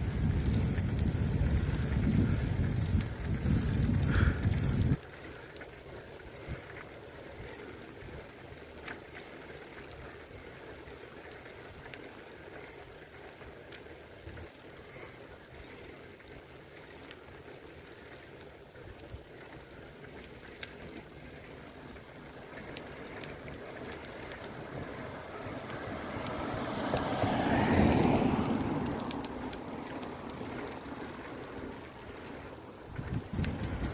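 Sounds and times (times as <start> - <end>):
faint rushing of bicycle ride: 0.0 - 33.9
light clicks and ticks: 18.9 - 33.9.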